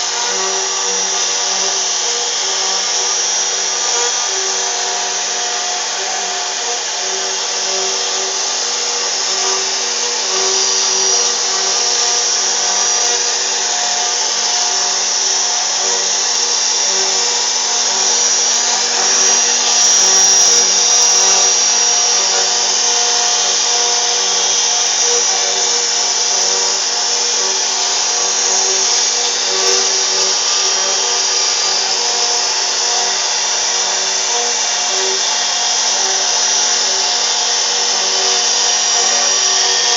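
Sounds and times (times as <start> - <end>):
router cutting wood: 0.0 - 39.9
router spindle high whine: 0.0 - 39.9.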